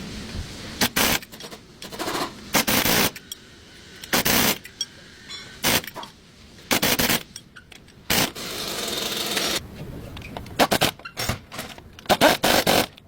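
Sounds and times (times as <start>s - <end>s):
metal scraping rub: 1.2s - 3.1s.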